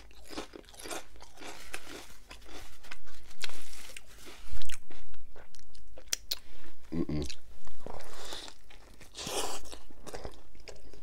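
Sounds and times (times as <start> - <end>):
crunching tortilla chips: 0.0 - 5.0.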